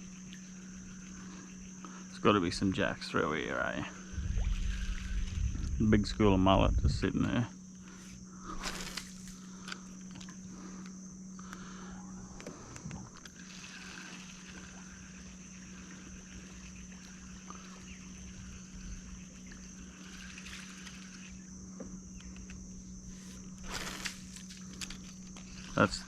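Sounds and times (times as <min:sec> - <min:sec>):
steady high whine: 0:00.0 - 0:26.0
steady low hum: 0:00.0 - 0:26.0
faint clicks: 0:19.4 - 0:22.6.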